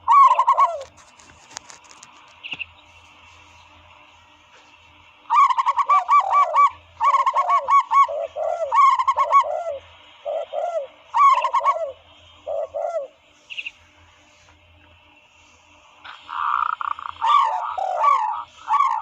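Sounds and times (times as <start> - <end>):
dove calls: 0.0 - 14.5, 16.0 - 19.0.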